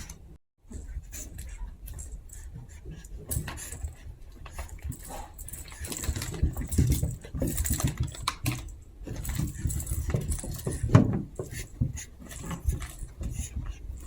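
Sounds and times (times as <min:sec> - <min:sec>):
puppies scuffling and clicking: 0:00.0 - 0:14.0.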